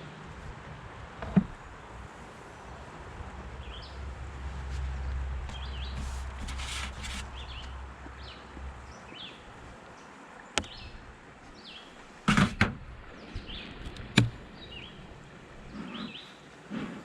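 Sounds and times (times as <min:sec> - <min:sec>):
faint birds chirping: 0:05.0 - 0:12.2, 0:12.9 - 0:16.6
wooden parts clicking and knocking: 0:13.8 - 0:14.4.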